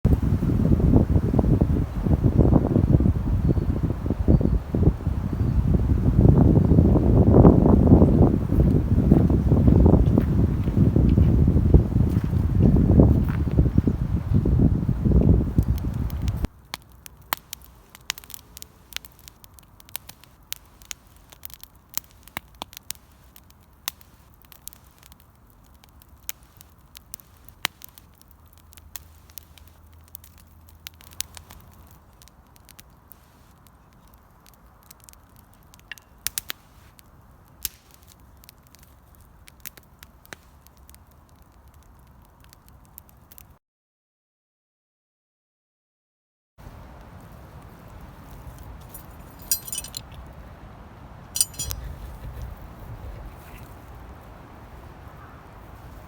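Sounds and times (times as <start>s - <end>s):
wind buffeting microphone: 0.1s - 16.5s, 46.7s - 56.0s
sharp crackles and clicks: 15.2s - 43.6s, 47.0s - 50.2s, 51.4s - 51.8s.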